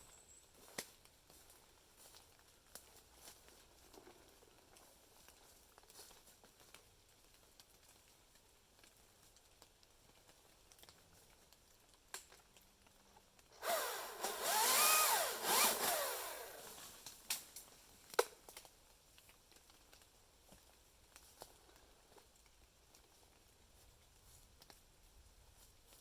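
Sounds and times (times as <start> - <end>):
chainsaw revving: 13.6 - 16.9.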